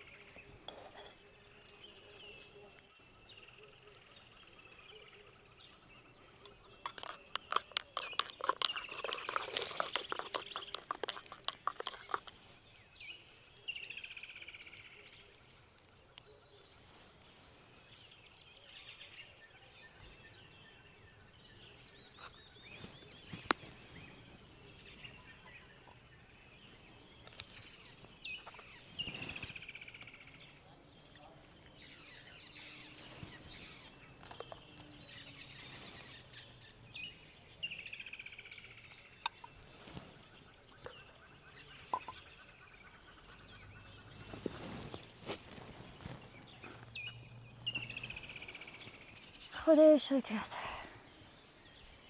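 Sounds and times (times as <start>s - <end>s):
birds chirping: 0.0s - 52.0s
rapid clicks and taps: 6.8s - 12.3s.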